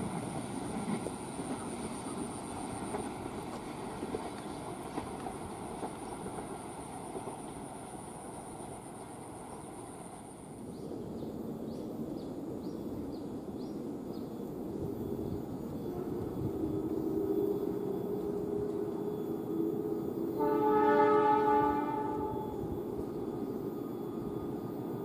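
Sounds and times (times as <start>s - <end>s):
diesel locomotive engine: 0.0s - 25.0s
train wheels rumbling: 0.0s - 25.0s
locomotive horn: 15.9s - 18.9s, 20.2s - 22.8s.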